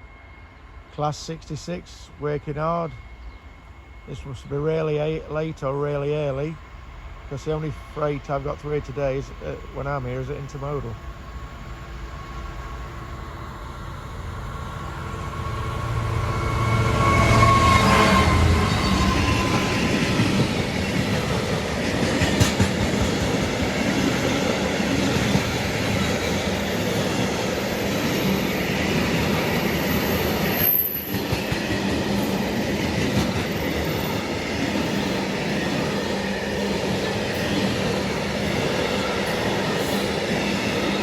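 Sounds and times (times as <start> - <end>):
freight train rolling past: 0.0 - 41.0
train wheels clattering on rails: 16.8 - 41.0.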